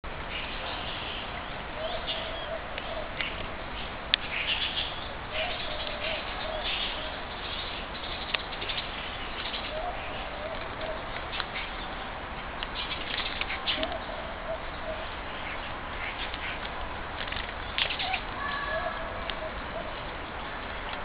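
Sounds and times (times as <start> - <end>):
bird cooing: 1.7 - 3.5, 5.3 - 7.3, 9.3 - 11.8, 13.5 - 16.6, 17.9 - 20.1.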